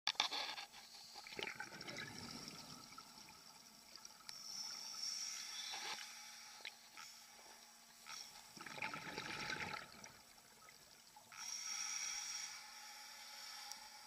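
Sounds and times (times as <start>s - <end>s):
air bubbles gurgling underwater: 1.3s - 3.5s, 8.6s - 10.8s.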